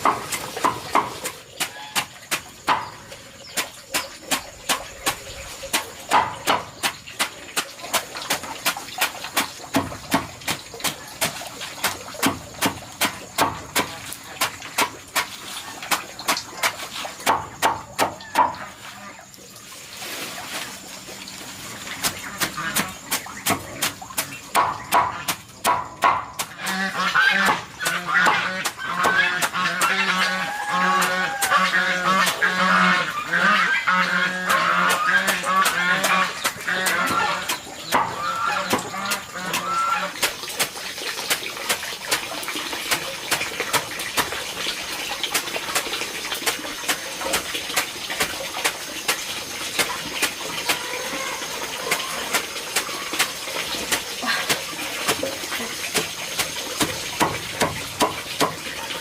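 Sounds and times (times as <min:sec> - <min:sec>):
sharp knocks: 0:05.8 - 0:07.3, 0:22.4 - 0:26.5
geese calling: 0:26.5 - 0:40.2.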